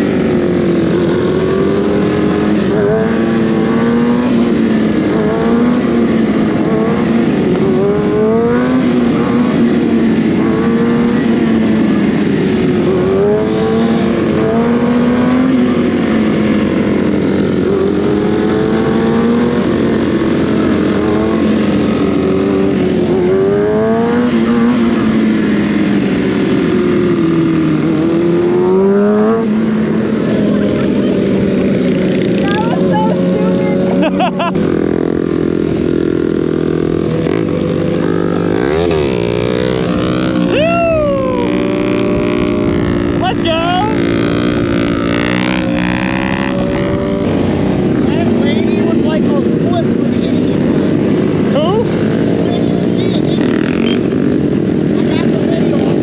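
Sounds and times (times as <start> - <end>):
sport bike engine revving: 0.0 - 56.0.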